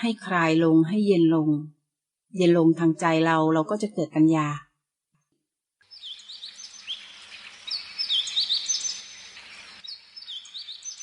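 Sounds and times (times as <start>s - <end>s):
small birds chirping: 5.8s - 11.0s.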